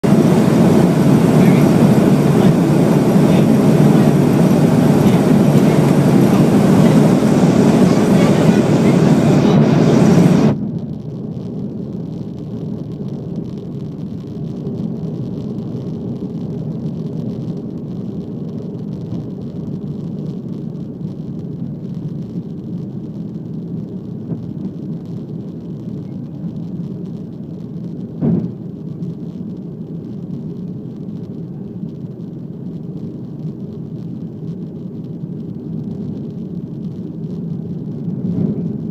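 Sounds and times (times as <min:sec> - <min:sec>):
jet engine roar: 0:00.0 - 0:38.9.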